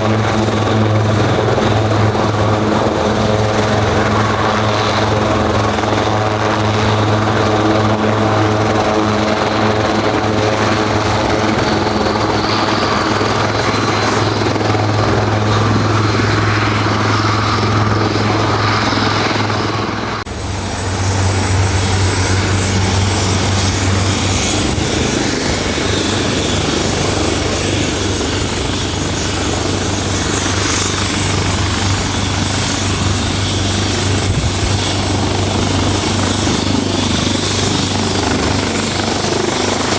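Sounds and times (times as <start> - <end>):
helicopter drone and whine: 0.0 - 39.9.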